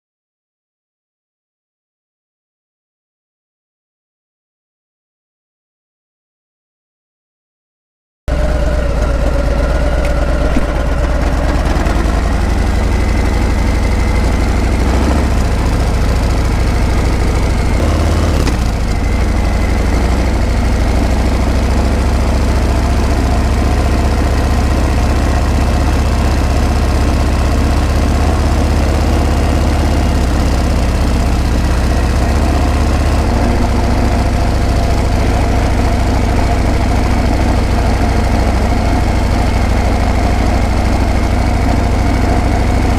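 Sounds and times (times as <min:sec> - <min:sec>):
motorcycle engine running: 0:08.3 - 0:42.9.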